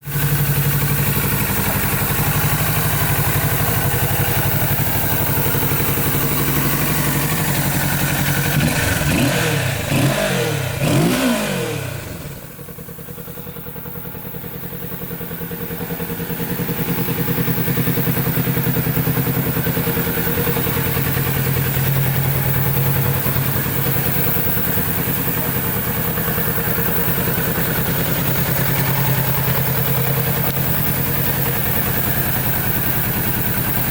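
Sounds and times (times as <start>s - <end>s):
motorcycle engine idling: 0.0s - 33.9s
engine revving: 1.5s - 12.5s.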